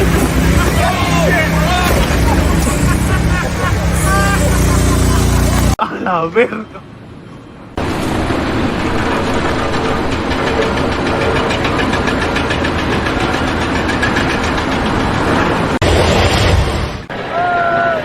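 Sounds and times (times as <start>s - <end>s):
engine running with rapid pulse: 0.0s - 5.8s, 7.8s - 15.9s.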